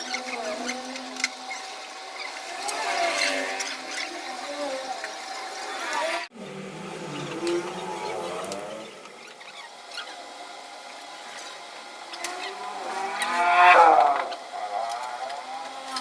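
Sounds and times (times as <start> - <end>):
vehicle engine passing by: 6.0 - 9.1, 12.3 - 15.6.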